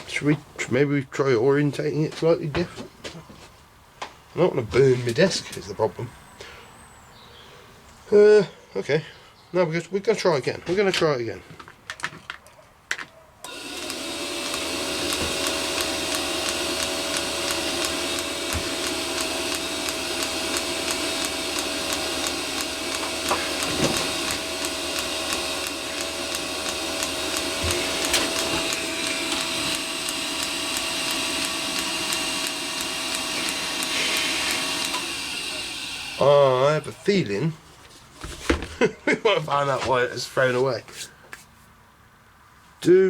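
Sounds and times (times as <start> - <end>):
blower motor whine: 13.4 - 37.1.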